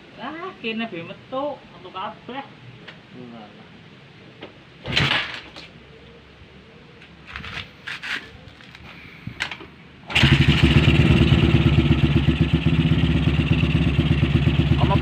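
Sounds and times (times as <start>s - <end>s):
motorcycle engine running: 10.1s - 15.0s.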